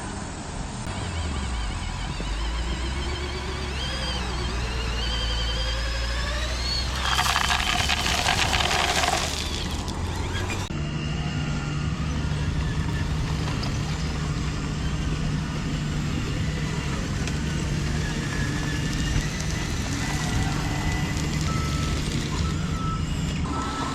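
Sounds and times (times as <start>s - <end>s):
faint motor whine: 0.0s - 23.9s
small motors humming: 0.6s - 23.9s
loud rattling rush: 6.9s - 10.7s.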